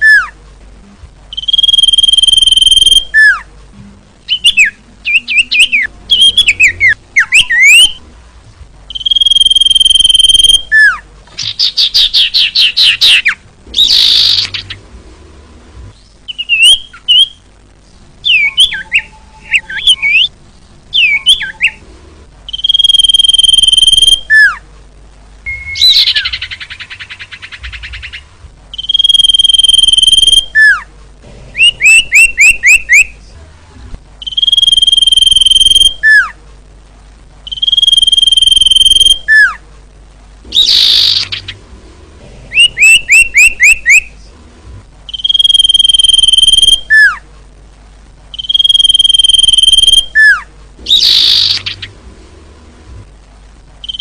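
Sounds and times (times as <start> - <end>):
bird calling with high whistles: 1.3 - 3.4, 4.3 - 8.0, 8.9 - 14.6, 22.5 - 24.6, 25.5 - 28.2, 28.8 - 30.8, 34.2 - 36.4, 37.5 - 39.6, 45.1 - 47.2, 48.4 - 51.8.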